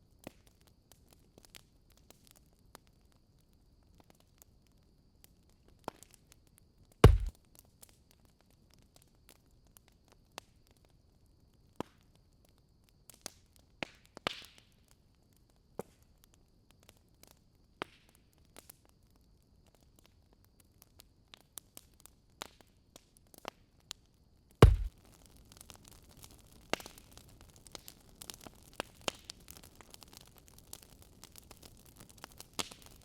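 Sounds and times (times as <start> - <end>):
heavy thud: 7.0 - 7.3, 24.6 - 24.9
wood fire crackling: 7.0 - 7.8, 24.6 - 33.0.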